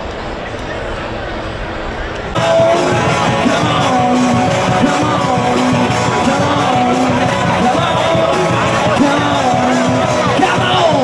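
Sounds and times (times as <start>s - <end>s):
lead singer singing: 2.4s - 11.0s
rock band playing: 2.4s - 11.0s.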